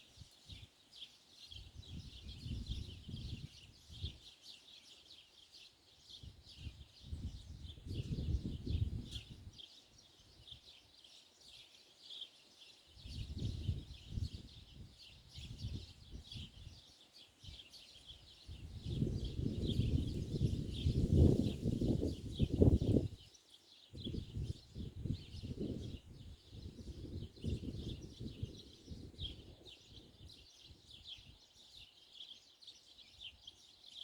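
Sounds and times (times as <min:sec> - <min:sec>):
flock of small birds chirping: 0:00.0 - 0:34.0
low wind rumble on microphone: 0:01.6 - 0:04.2, 0:06.2 - 0:09.6, 0:13.0 - 0:16.8, 0:18.4 - 0:23.2, 0:24.0 - 0:31.4.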